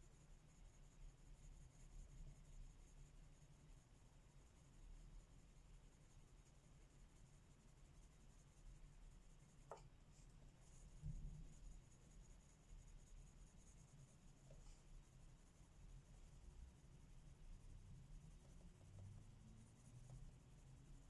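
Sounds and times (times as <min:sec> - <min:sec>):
colouring scratching on paper: 0:06.4 - 0:16.3.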